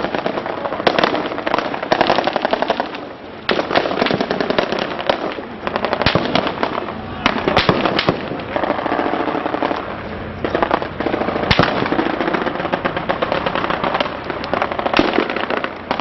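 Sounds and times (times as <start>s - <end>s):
loud close gunshot cracks: 0.0s - 9.9s, 10.6s - 16.0s
machine-gun fire: 3.5s - 9.8s, 10.6s - 16.0s.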